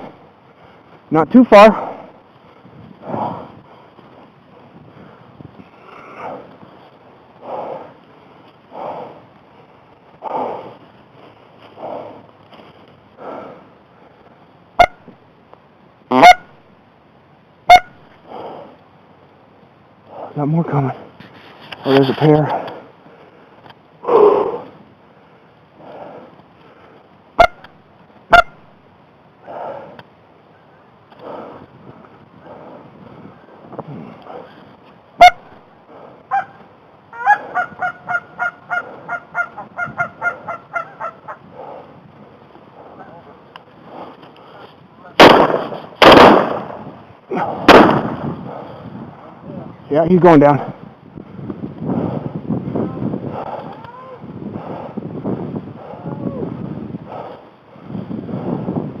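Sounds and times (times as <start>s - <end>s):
goose honking: 16.1s - 16.5s, 17.7s - 17.9s, 27.4s - 27.7s, 36.3s - 41.4s.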